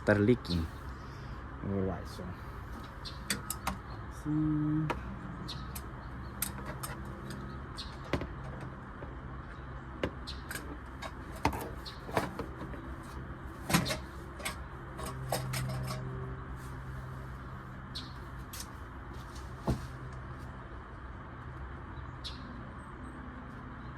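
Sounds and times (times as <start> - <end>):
tools clicking and knocking: 5.7 - 9.2, 13.7 - 16.2.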